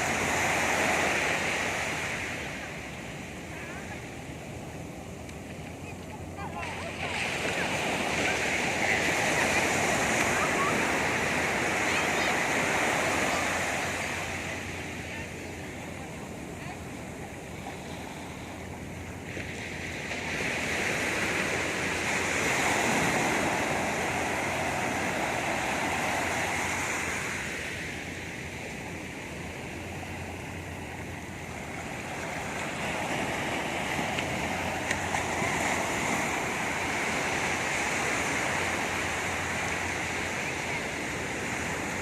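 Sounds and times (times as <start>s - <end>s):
sea surf washing onto beach: 0.0s - 42.0s.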